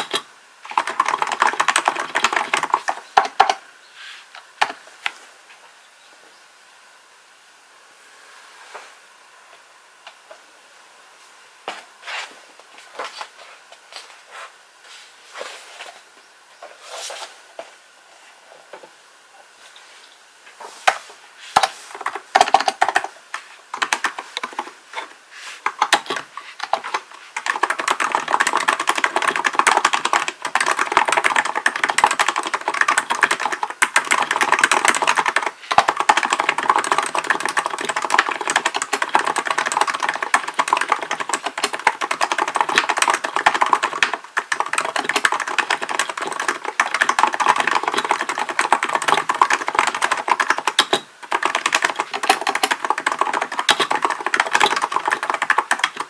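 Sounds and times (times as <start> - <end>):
typing on a keyboard: 0.0 - 3.6, 21.6 - 56.0.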